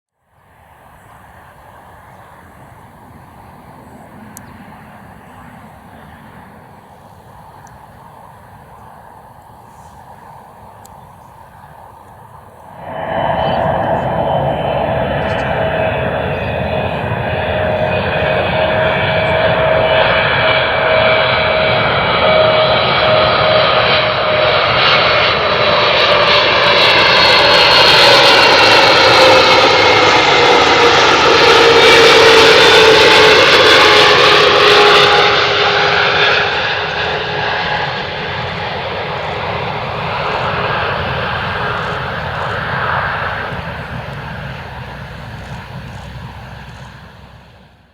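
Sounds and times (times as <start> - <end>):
jet engines passing by: 0.2 - 47.9.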